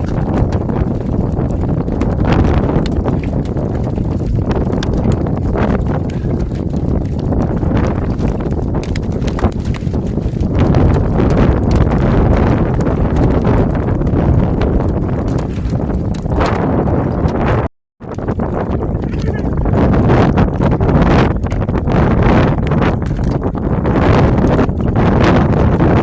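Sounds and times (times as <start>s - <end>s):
hailstones pelting car roof: 0.0s - 17.5s
steady loud rumble: 0.0s - 17.6s.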